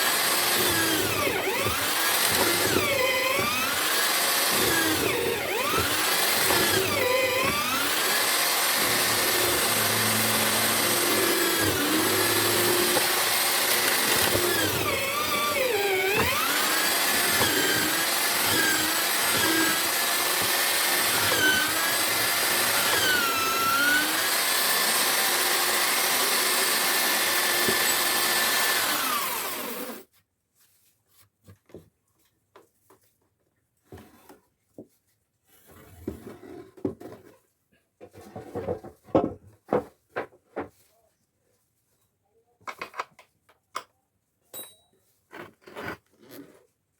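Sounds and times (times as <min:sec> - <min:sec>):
drill motor running: 0:00.0 - 0:30.0.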